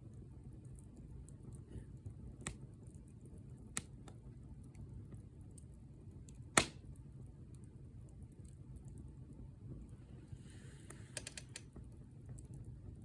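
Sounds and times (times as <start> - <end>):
wood fire crackling: 0.0 - 13.0
sharp pops of fire: 1.4 - 3.0, 3.6 - 4.8, 5.5 - 7.1.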